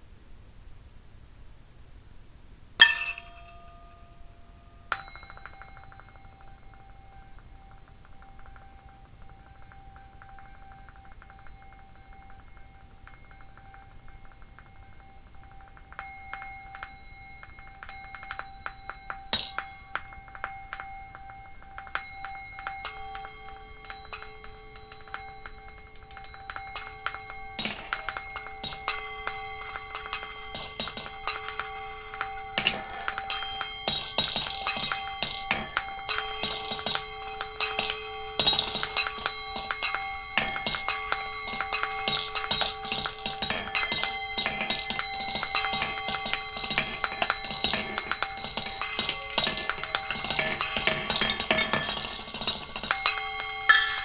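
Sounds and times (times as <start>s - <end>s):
ceramic plates struck: 2.8s - 6.7s, 21.7s - 54.0s
light clinks and taps: 2.8s - 54.0s
ringing tones: 2.8s - 54.0s.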